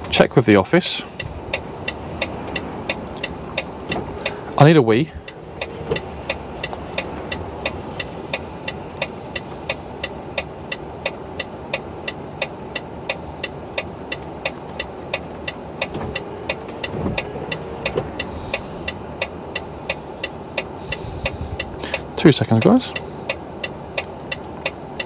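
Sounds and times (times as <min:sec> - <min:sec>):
low engine rumble: 0:00.0 - 0:25.0
indicator ticking: 0:05.2 - 0:25.0.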